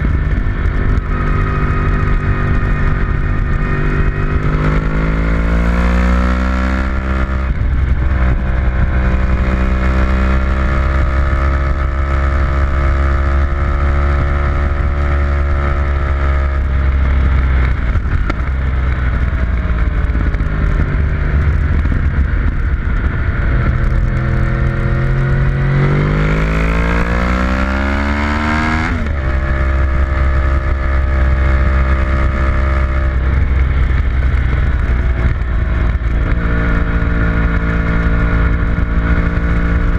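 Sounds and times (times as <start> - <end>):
heavy low rumble: 0.0 - 39.9
racing engine revving: 23.4 - 33.9.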